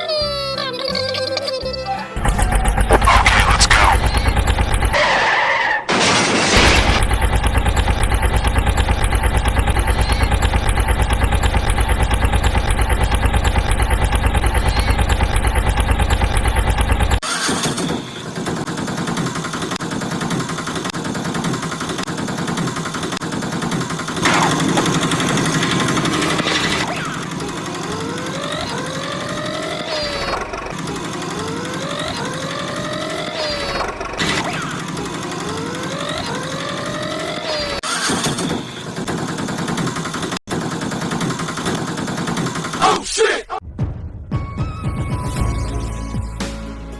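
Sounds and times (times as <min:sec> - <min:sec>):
engine-like rumble: 0:02.2 - 0:05.0
vehicle engine chugging: 0:02.2 - 0:05.3, 0:06.6 - 0:42.9
rising revving whines: 0:02.2 - 0:05.4, 0:24.2 - 0:39.0.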